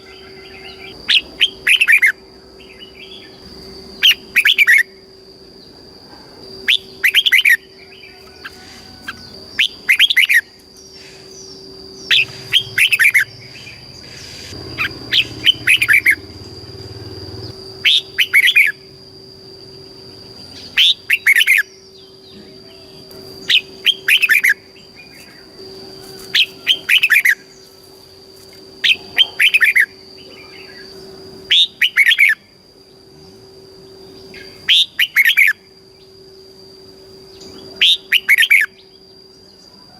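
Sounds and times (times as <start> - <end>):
bulbul singing: 0.0 - 5.9, 6.5 - 36.4, 37.0 - 39.7.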